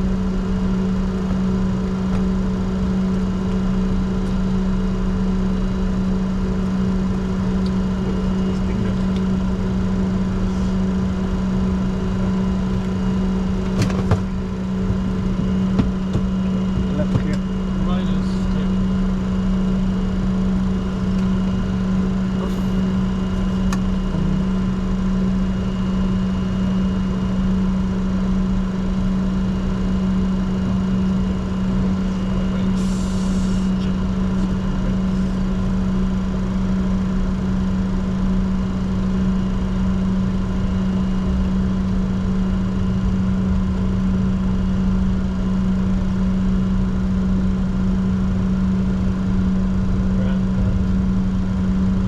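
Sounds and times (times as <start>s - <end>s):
jet engine and air system hum: 30.4s - 34.1s.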